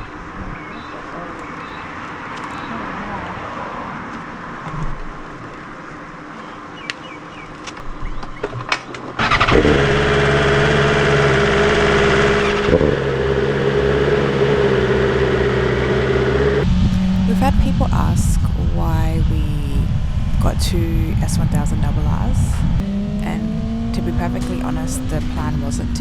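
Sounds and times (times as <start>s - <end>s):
motorcycle engine starting and idling: 8.7s - 26.0s.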